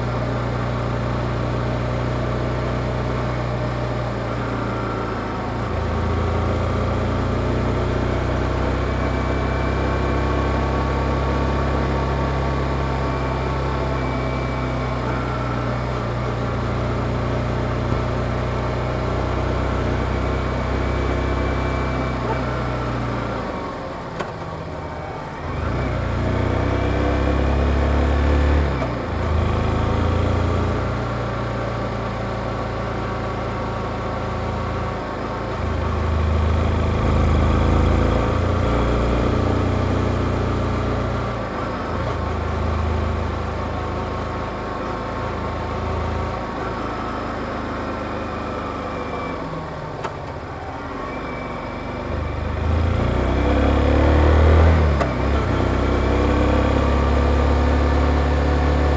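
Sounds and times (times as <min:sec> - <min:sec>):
motorcycle engine revving: 0:34.5 - 0:58.9.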